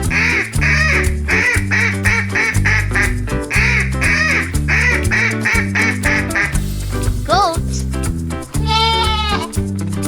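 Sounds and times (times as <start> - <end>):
duck quacking: 0.0 - 6.7
music with steady beat: 0.0 - 10.0.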